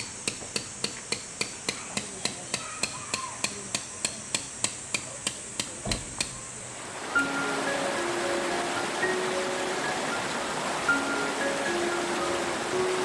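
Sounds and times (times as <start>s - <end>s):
hammer tapping: 0.0s - 6.4s.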